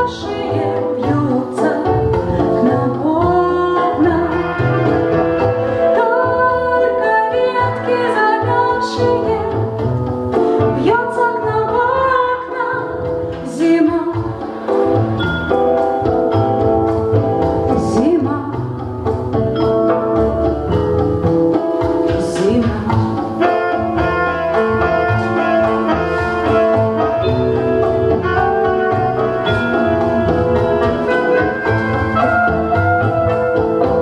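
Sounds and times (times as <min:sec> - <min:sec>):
instrumental backing with low beat: 0:12.9 - 0:34.0.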